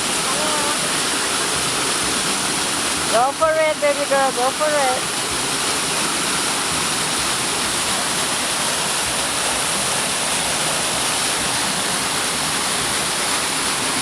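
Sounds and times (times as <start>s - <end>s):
waterfall pouring: 0.0s - 14.0s.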